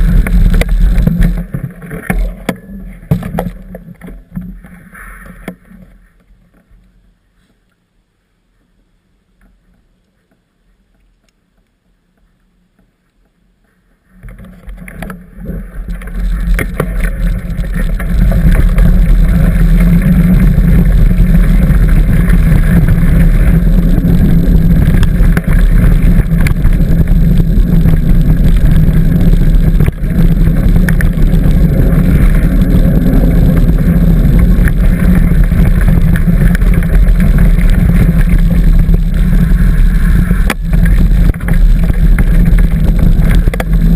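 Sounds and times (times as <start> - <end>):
bicycle rattling over trail: 0.0 - 6.8, 13.8 - 43.9
wind buffeting microphone: 15.7 - 43.9.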